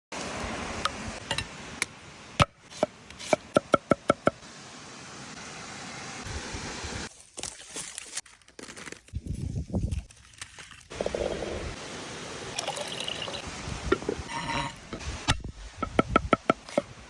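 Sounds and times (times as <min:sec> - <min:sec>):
steady hiss: 0:10.9 - 0:17.0.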